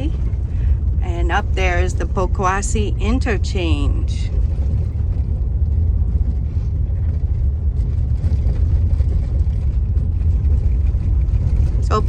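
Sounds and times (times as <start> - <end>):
car road rumble from inside: 0.0 - 12.0.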